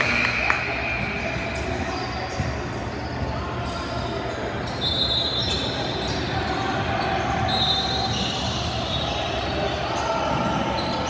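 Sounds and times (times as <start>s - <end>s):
crowd hum: 0.0s - 2.0s.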